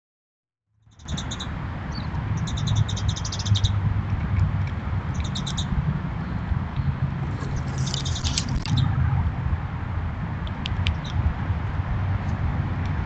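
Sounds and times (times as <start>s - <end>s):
bird trilling: 0.9s - 3.8s, 5.1s - 5.8s, 7.6s - 8.9s
steady low rumble: 1.5s - 13.0s.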